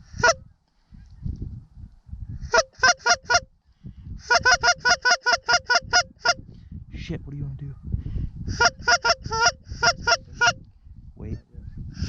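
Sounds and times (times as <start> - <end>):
goose clucks: 0.0 - 0.4, 2.5 - 3.5, 4.2 - 6.4, 8.5 - 10.6
low wind rumble: 0.0 - 12.0
goose honks: 0.1 - 0.4, 2.5 - 3.5, 4.2 - 6.4, 8.5 - 10.6.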